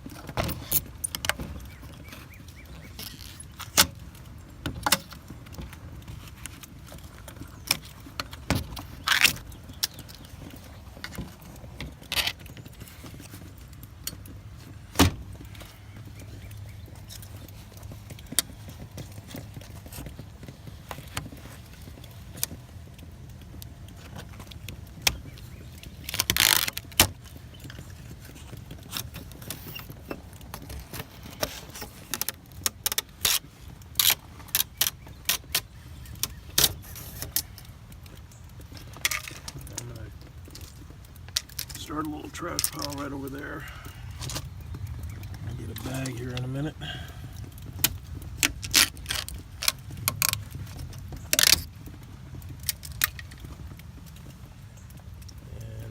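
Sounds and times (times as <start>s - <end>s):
metallic clicks and scrapes: 23.9s - 46.6s.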